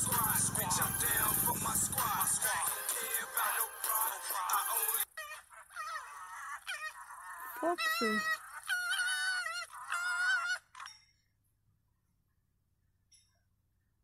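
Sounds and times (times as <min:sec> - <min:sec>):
foxes crying: 0:05.0 - 0:11.0.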